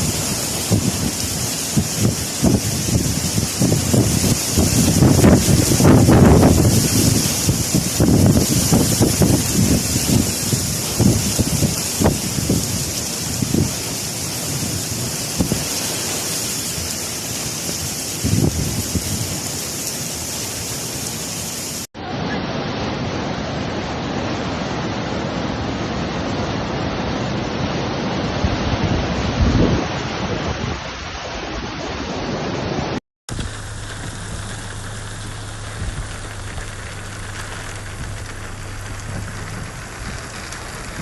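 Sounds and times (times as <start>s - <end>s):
heavy rain: 0.0s - 41.0s
running water: 33.3s - 41.0s.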